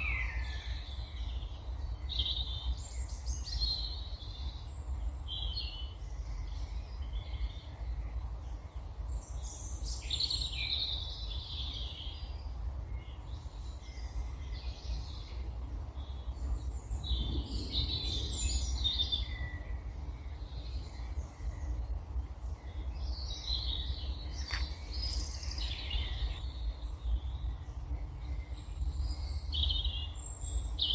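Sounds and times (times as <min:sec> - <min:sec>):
songbirds warbling: 0:00.0 - 0:30.9
steady low rumble: 0:11.0 - 0:30.9.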